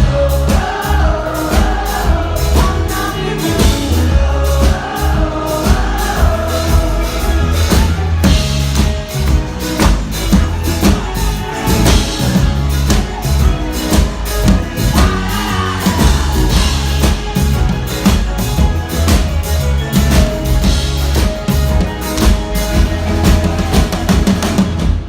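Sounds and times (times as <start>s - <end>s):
heavy bass: 0.0s - 25.0s
live band playing pop-rock: 0.0s - 25.0s
steady drum beat: 0.0s - 25.0s.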